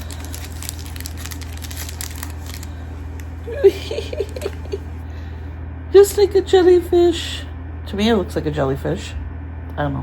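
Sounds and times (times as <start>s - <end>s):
plastic wrapper crinkling: 0.0s - 3.4s
steady low hum: 0.0s - 10.0s.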